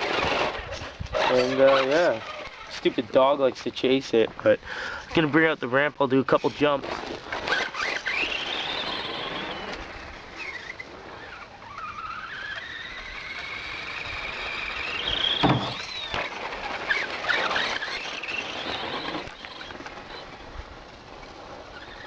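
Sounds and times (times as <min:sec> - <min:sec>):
electric motor whining: 0:00.0 - 0:03.2, 0:06.4 - 0:22.0
sharp thump: 0:15.4 - 0:15.9.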